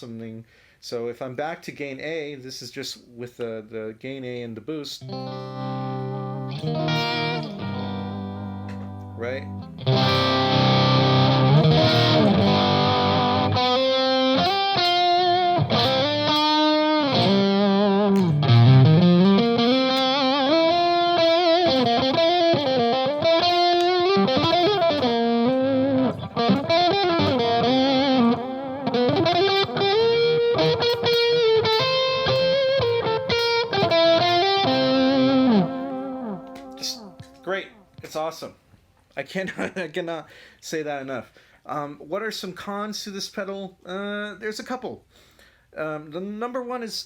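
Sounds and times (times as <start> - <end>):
overdriven electric guitar: 5.0 - 37.4.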